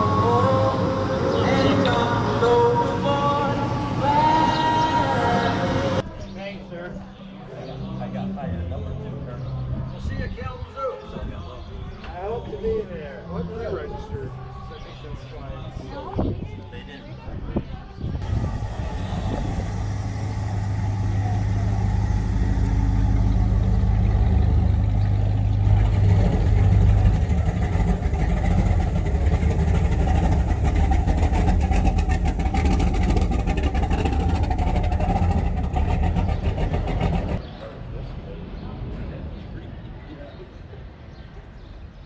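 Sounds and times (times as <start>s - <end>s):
car engine running: 0.0s - 6.0s, 18.2s - 37.4s.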